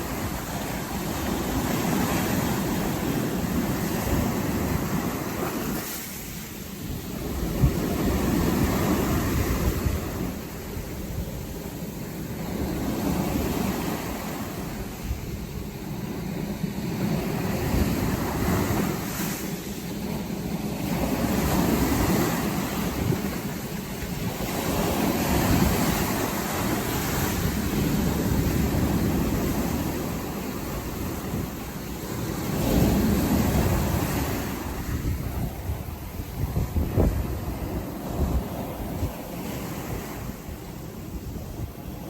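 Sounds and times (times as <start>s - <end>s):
sea waves breaking on beach: 0.0s - 42.0s
wind rumble on microphone: 0.0s - 42.0s.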